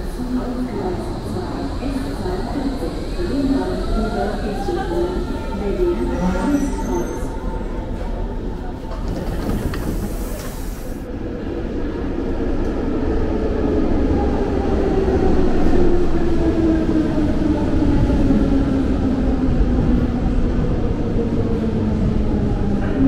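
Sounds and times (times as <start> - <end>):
train running gear rumble: 7.9 - 11.0.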